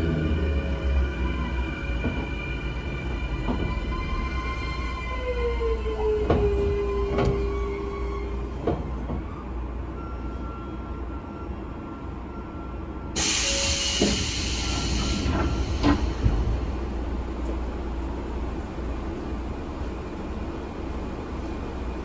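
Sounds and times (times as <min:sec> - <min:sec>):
train rumble: 0:00.0 - 0:22.0
train doors clunking open: 0:03.2 - 0:04.6, 0:05.9 - 0:09.9, 0:13.2 - 0:17.6
compressed air hiss: 0:13.2 - 0:16.2.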